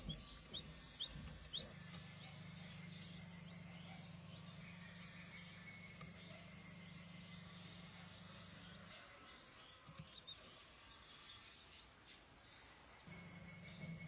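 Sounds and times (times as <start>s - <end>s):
steady low hum: 0.0s - 9.0s
young bird peeping: 0.0s - 14.0s.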